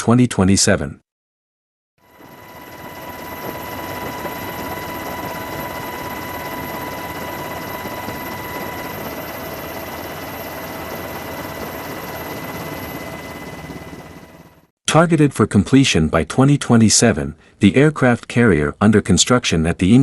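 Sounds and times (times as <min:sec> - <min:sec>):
aircraft turbine engine rushing: 0:02.1 - 0:14.6
thin whining tones: 0:02.1 - 0:14.6.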